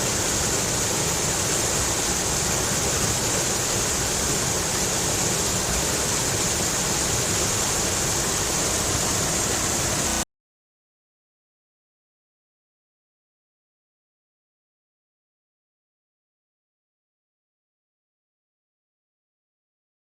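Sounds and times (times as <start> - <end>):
stream rushing over rocks: 0.0 - 10.2.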